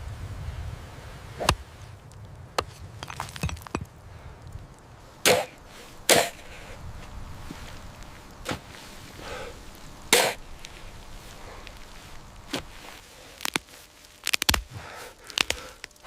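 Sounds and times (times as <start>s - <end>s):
low rumble: 0.0s - 12.8s
sharp chopping strikes: 5.2s - 6.4s, 10.1s - 10.4s.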